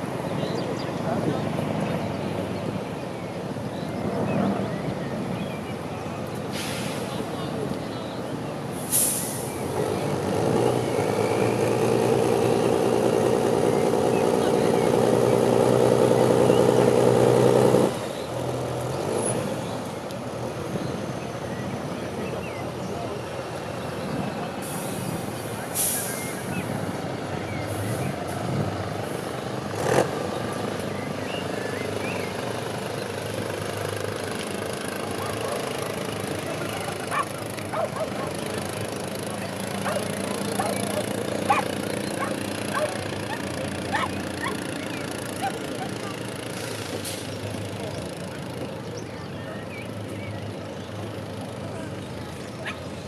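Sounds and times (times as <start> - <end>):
short sharp hiss: 6.5 - 7.1, 8.8 - 9.5, 25.7 - 26.4
truck engine under load: 8.6 - 49.1.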